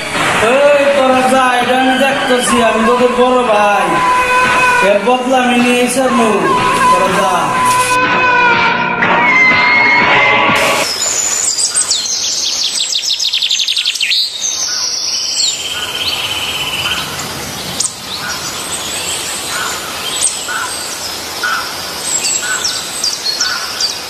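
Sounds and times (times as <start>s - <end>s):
birds singing and chirping: 0.0s - 8.0s, 10.8s - 24.0s.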